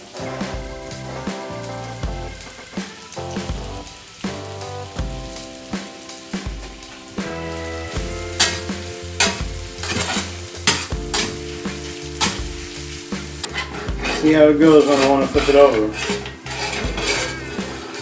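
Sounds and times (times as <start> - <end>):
hash brown sizzling in a pan: 0.0 - 18.0
spatula scraping a pan: 7.0 - 18.0.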